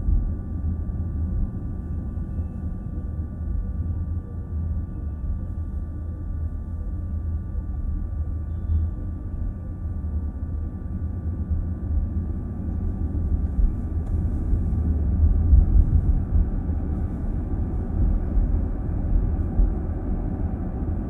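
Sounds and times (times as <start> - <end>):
road rumble and tyre noise: 10.2 - 21.0.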